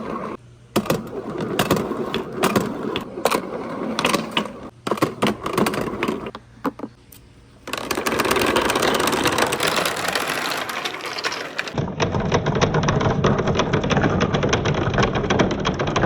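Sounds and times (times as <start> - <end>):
marbles clacking down wooden run: 7.7 - 16.0.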